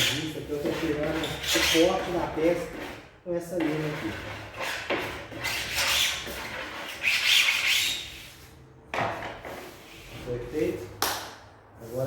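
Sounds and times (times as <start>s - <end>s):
sandpaper scraping wood: 0.0s - 3.0s, 3.6s - 8.5s.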